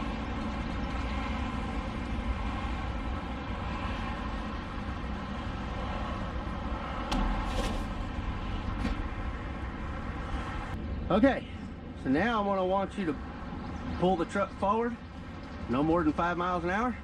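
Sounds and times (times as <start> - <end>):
sharp knock: 7.1 - 9.2.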